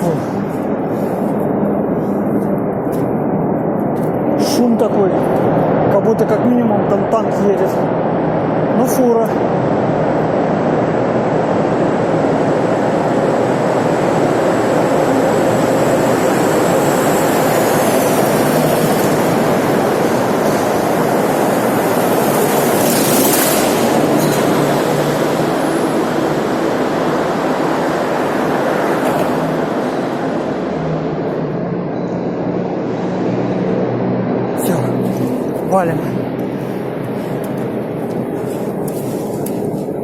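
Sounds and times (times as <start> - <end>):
traffic roar in tunnel: 0.0 - 40.0.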